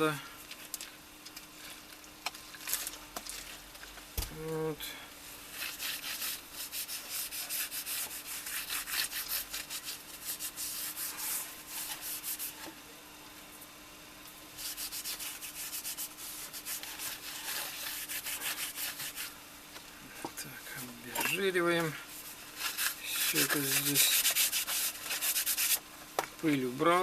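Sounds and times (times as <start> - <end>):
rubbing strokes on sandal sole: 5.4 - 12.7, 14.6 - 19.4, 20.8 - 25.8.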